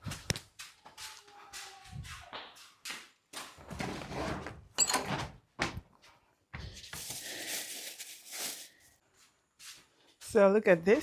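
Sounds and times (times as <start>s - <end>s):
rustling of handled objects: 6.6s - 9.0s.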